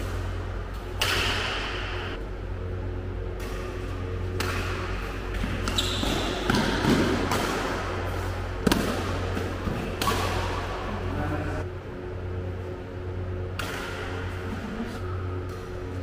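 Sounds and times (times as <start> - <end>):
rackets hitting shuttlecock: 0.0 - 2.1, 3.2 - 10.9, 13.4 - 14.4
steady low hum: 0.0 - 16.0.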